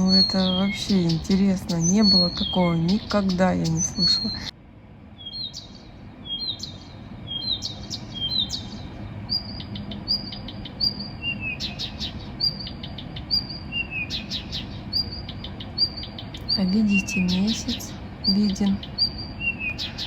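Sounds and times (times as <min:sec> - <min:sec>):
songbird singing: 0:00.0 - 0:20.0
sharp bird clicks: 0:09.6 - 0:17.4.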